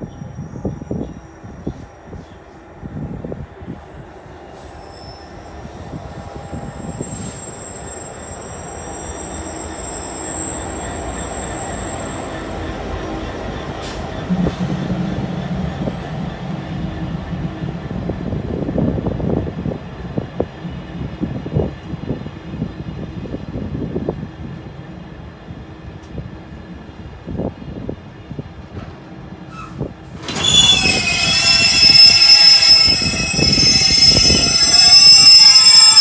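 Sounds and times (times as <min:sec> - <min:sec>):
diesel locomotive engine hum: 0:00.0 - 0:36.0
train wagons rumbling and knocking: 0:10.6 - 0:36.0.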